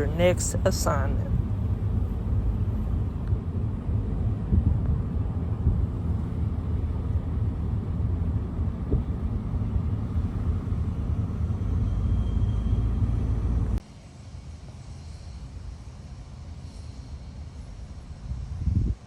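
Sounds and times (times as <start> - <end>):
diesel locomotives idling: 0.0 - 13.8
outdoor ambience: 0.0 - 19.0.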